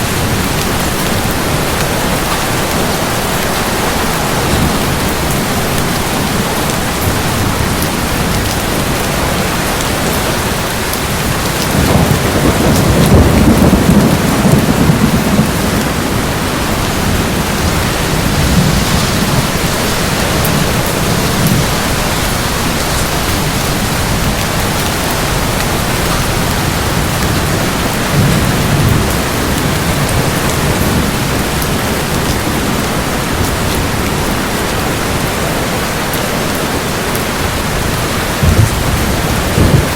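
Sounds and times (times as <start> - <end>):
heavy rain: 0.0 - 39.9
rumble of thunder: 11.2 - 34.9, 37.5 - 39.9.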